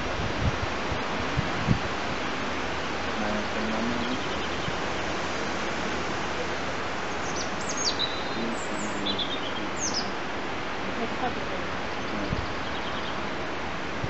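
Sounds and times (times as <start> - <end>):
steady background hiss: 0.0 - 14.0
small bird chirping: 7.1 - 10.2.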